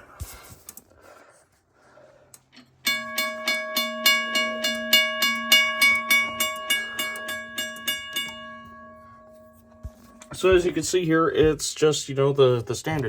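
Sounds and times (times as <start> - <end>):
railroad crossing bell striking: 2.8 - 10.6.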